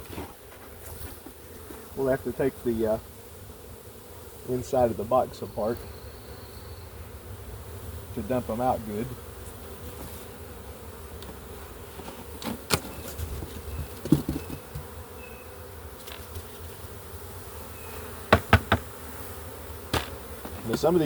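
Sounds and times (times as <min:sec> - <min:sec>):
bee swarm buzzing: 0:00.0 - 0:21.0
knocks from box: 0:13.8 - 0:14.9, 0:18.3 - 0:19.0, 0:19.9 - 0:20.9.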